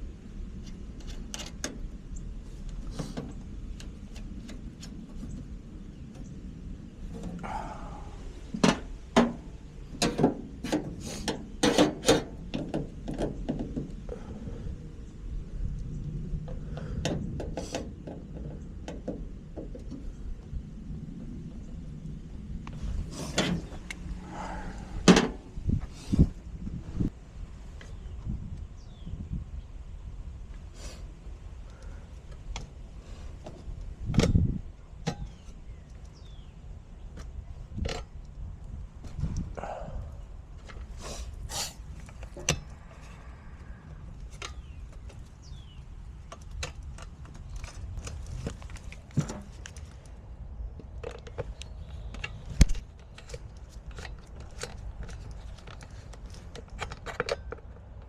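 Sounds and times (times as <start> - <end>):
knocks clicks and scrapes of handling: 0.6 - 1.9, 8.5 - 14.1, 16.4 - 20.2, 22.6 - 24.4, 44.2 - 58.0
tools knocking and scraping: 8.5 - 13.9, 16.5 - 20.0, 25.0 - 25.5, 42.0 - 43.0, 46.3 - 49.8.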